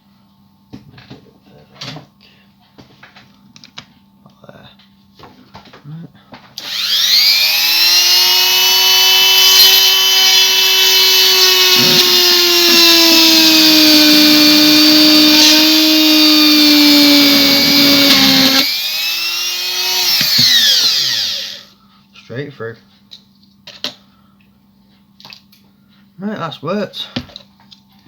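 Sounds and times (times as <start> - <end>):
rotary tool drilling plastic: 6.6 - 21.7.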